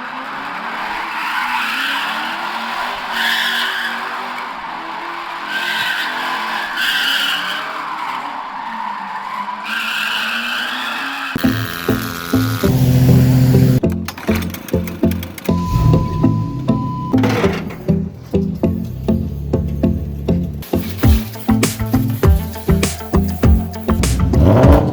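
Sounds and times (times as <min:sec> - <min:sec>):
car engine revving: 0:00.0 - 0:13.9, 0:14.8 - 0:24.9
music: 0:11.4 - 0:24.9
tyres squealing: 0:15.2 - 0:24.9.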